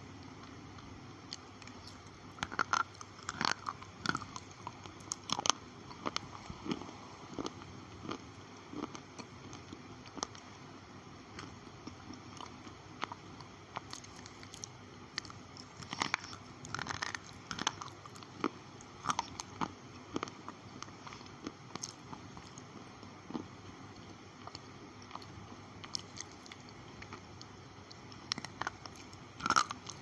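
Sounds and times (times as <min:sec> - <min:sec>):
pencils being crunched by teeth: 0:13.8 - 0:18.2.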